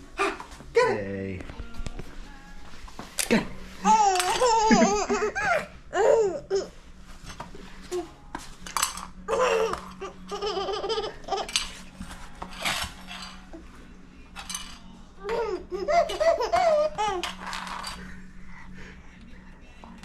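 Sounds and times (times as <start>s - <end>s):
baby laughing and babbling: 3.8s - 6.8s, 9.3s - 11.7s, 15.2s - 17.4s.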